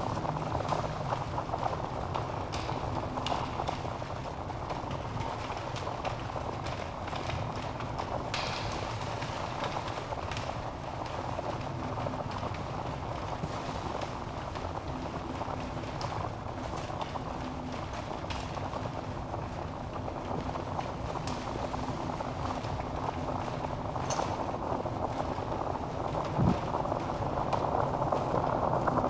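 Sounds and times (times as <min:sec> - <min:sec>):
flames hissing: 0:00.0 - 0:03.1, 0:12.2 - 0:17.3
fire crackling and popping: 0:00.0 - 0:29.0.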